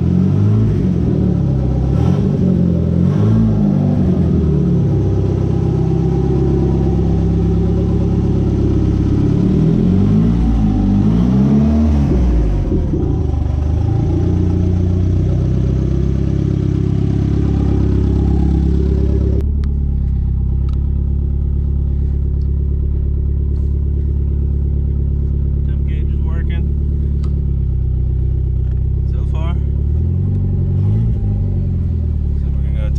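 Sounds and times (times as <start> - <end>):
turbocharged car engine revving: 0.0 - 32.9.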